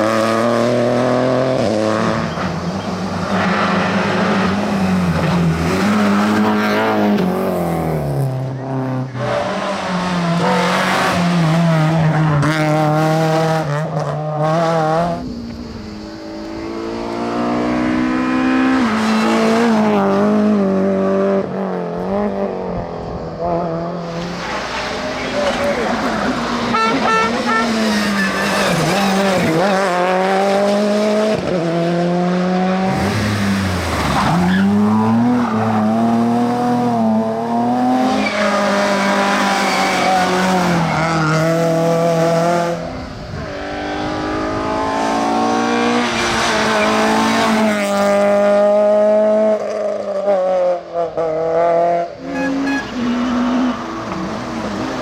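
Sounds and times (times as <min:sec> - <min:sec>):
rally car engine revving: 0:00.0 - 0:55.0
tyre squeal: 0:25.0 - 0:29.6, 0:52.2 - 0:54.0.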